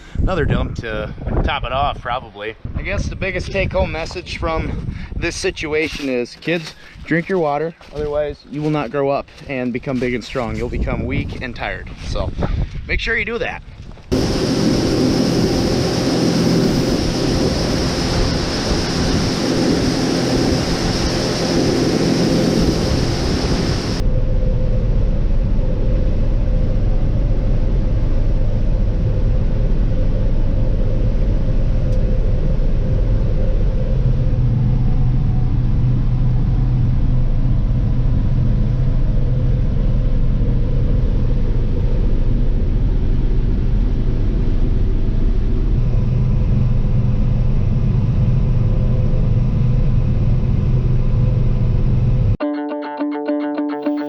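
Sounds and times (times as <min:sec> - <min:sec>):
harvest machinery engine: 0:14.1 - 0:25.4.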